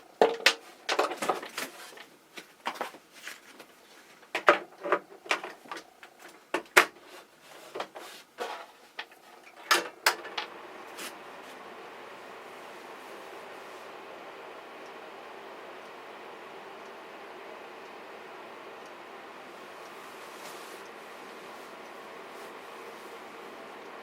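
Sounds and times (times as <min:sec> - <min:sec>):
fan being handled clicks: 0:09.0 - 0:11.2
fan running whoosh: 0:09.3 - 0:24.0.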